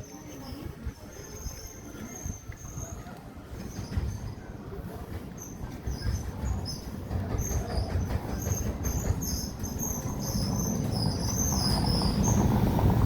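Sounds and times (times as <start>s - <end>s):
wind rumble on microphone: 10.1s - 13.0s.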